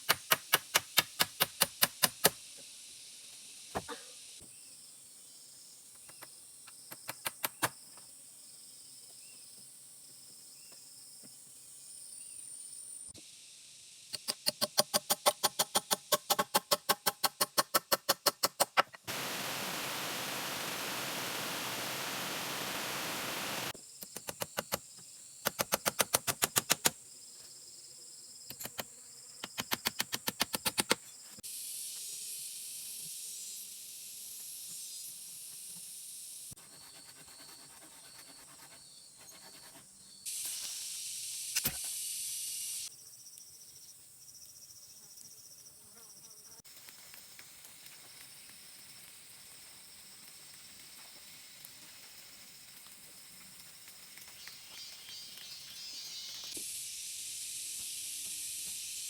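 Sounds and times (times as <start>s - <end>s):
steady hiss: 0.0s - 9.0s, 11.6s - 14.5s, 19.1s - 27.6s, 29.5s - 36.6s, 40.2s - 43.1s, 46.6s - 59.0s.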